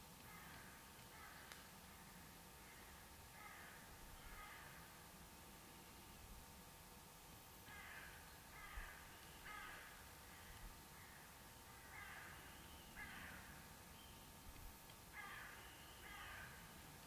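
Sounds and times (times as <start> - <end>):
faint steady hiss: 0.0 - 17.0
distant bird harsh calls: 2.6 - 4.9, 7.6 - 14.4, 15.1 - 16.8.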